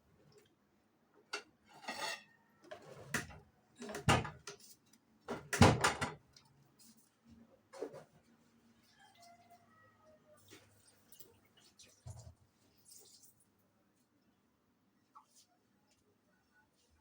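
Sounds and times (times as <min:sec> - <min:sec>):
kitchen items knocking and clunking: 0:02.8 - 0:04.6, 0:05.3 - 0:06.2.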